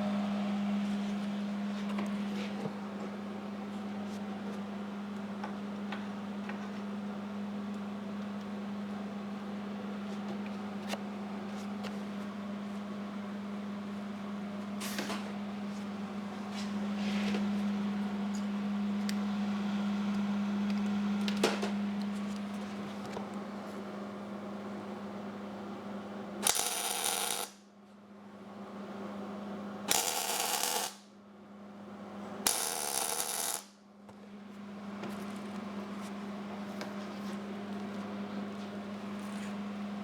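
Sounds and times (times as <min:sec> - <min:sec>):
low machine hum: 0:00.0 - 0:40.0
welder click: 0:26.4 - 0:27.5
welding crackling bursts: 0:26.4 - 0:27.6, 0:29.9 - 0:31.0, 0:32.5 - 0:33.7.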